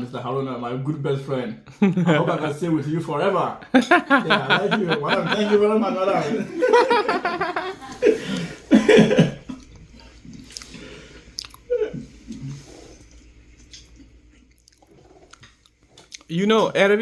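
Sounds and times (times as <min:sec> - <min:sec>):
chewing and small clicks: 0:09.6 - 0:10.8, 0:11.4 - 0:11.7, 0:13.0 - 0:16.3.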